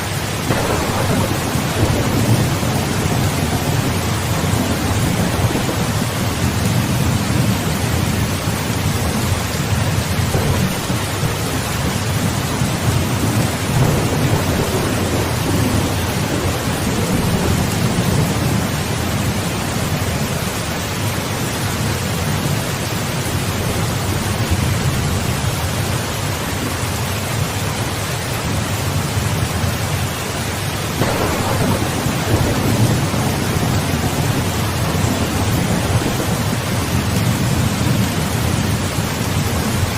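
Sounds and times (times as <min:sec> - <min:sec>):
heavy rain: 0:00.0 - 0:39.9
rolling thunder: 0:00.4 - 0:20.6, 0:30.9 - 0:39.9.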